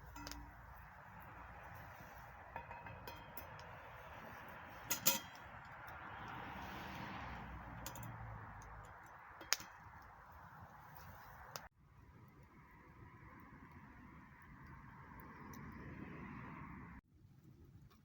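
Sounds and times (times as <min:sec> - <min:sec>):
sharp pops of burning wood: 0:00.0 - 0:04.7, 0:08.6 - 0:10.2
campfire crackling: 0:00.0 - 0:18.0.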